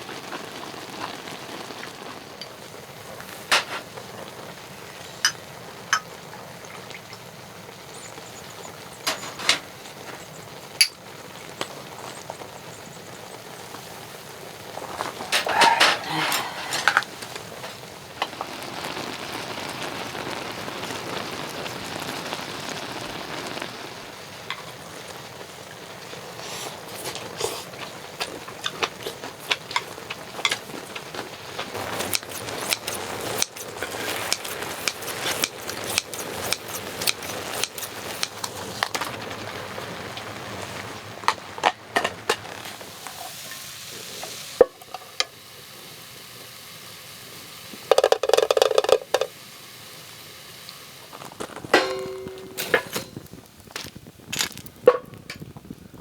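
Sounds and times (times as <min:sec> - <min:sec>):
food sizzling in a pan: 0:00.0 - 0:56.0
utensil scraping a pan: 0:03.2 - 0:04.0, 0:14.8 - 0:17.8, 0:26.4 - 0:39.2, 0:51.4 - 0:53.3.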